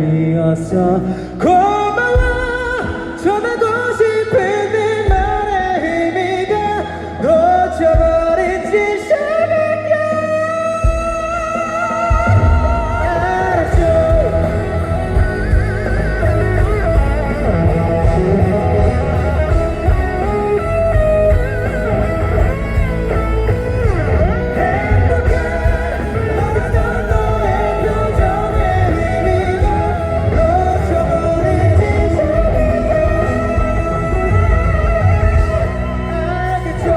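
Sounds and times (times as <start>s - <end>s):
electric guitar lead with bends: 0.0s - 36.9s
live rock band playing: 0.0s - 36.9s.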